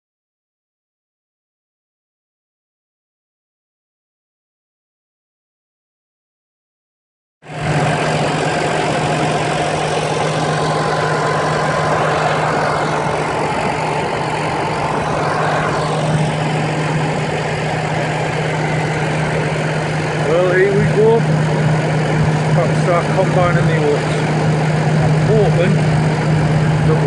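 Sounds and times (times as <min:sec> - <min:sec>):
heavy diesel engine droning: 0:07.4 - 0:27.0.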